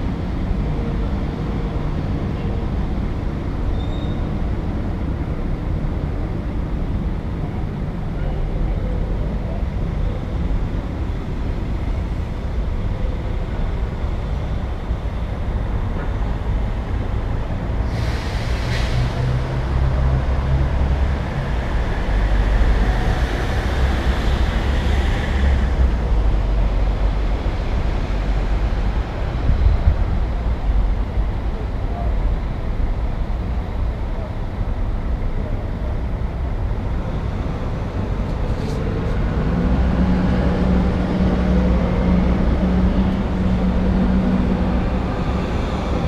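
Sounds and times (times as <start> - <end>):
traffic engines rumbling: 0.0 - 46.0
vehicle passing with hissing whoosh: 17.6 - 29.5.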